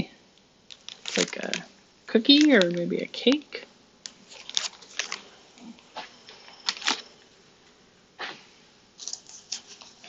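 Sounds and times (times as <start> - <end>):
snack packaging rustling: 0.7 - 5.4, 6.5 - 7.1, 9.0 - 10.0.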